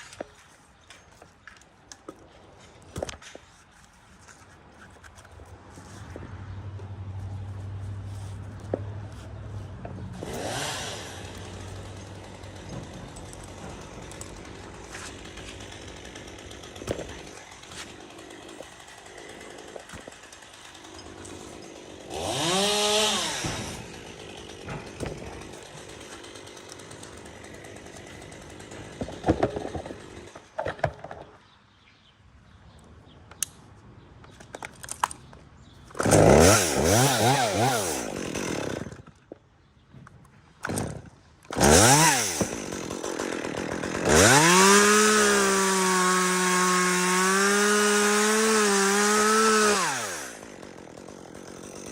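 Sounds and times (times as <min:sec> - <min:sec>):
chainsaw revving: 0:10.1 - 0:30.4, 0:35.9 - 0:39.2, 0:40.6 - 0:51.9.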